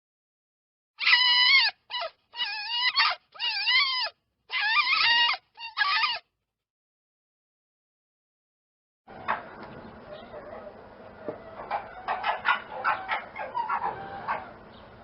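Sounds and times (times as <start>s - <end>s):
high wavering animal calls: 1.0s - 6.2s, 9.1s - 14.7s.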